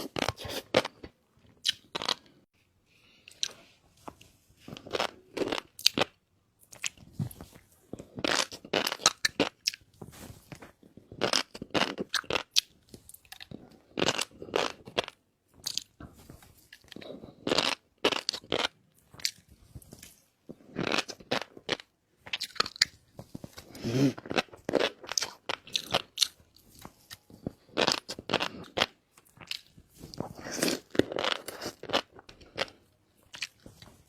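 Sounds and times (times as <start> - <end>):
person chewing and biting: 7.9 - 9.9, 11.0 - 16.0, 16.6 - 33.8.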